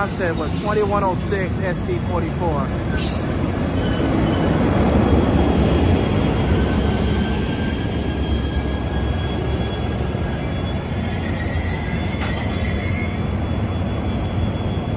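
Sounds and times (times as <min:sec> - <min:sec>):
diesel locomotive low rumble: 0:00.0 - 0:14.9
wheel and brake squealing: 0:00.0 - 0:14.9.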